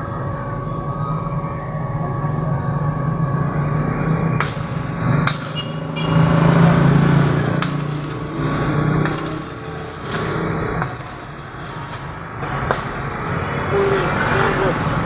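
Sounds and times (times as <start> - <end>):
welding arc crackling and buzzing: 3.9 - 13.6
sharp welding pops: 4.4 - 13.4.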